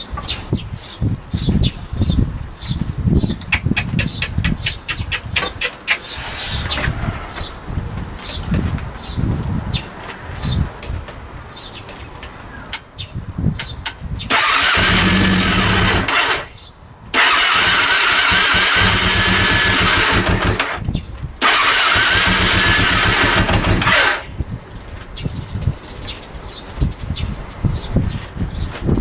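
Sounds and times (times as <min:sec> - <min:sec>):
motorcycle engine cranking on starter: 0:06.1 - 0:07.1, 0:14.3 - 0:24.4.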